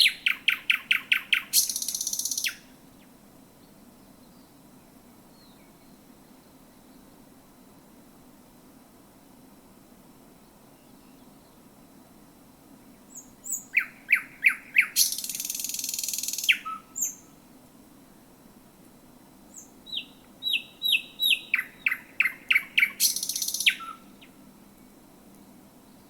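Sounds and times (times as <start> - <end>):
bird singing sharp repeated notes: 0.0 - 2.6, 13.1 - 17.2, 19.6 - 24.4.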